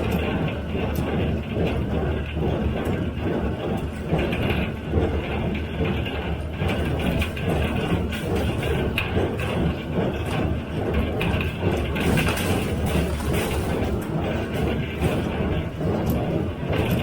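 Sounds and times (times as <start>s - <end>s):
baler machinery clacking: 0.0s - 17.0s
tractor engine drone: 5.3s - 17.0s.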